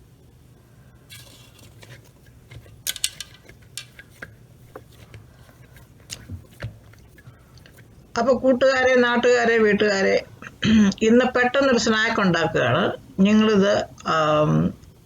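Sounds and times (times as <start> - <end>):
dishes and utensils clinking: 2.6 - 4.2.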